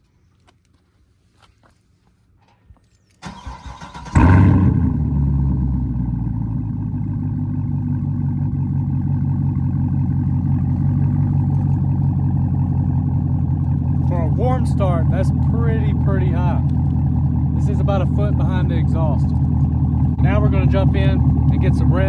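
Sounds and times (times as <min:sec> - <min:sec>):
car engine idling: 0:03.2 - 0:22.0.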